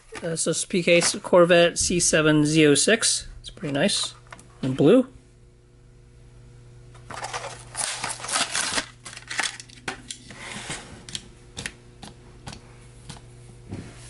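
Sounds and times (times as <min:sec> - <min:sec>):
plastic blister pack crinkling: 0:07.0 - 0:09.8.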